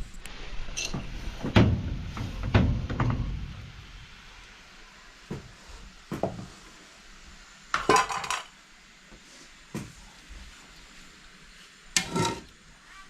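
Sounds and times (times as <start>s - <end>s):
metal cookware clinking: 12.0s - 12.5s.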